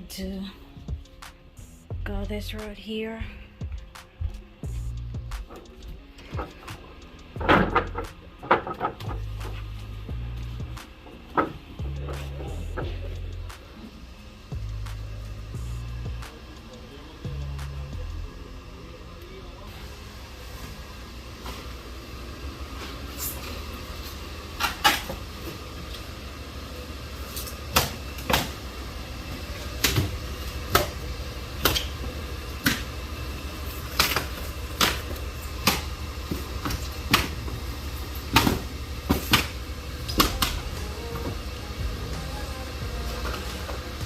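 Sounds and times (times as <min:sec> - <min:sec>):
steady low rumble: 0:00.0 - 0:20.2, 0:29.1 - 0:44.0.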